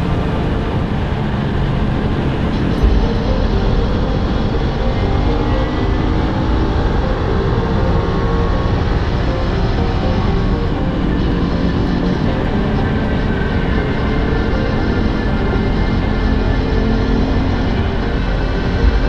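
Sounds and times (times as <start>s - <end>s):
wind rush: 0.0s - 19.0s
low thump: 2.8s - 4.0s.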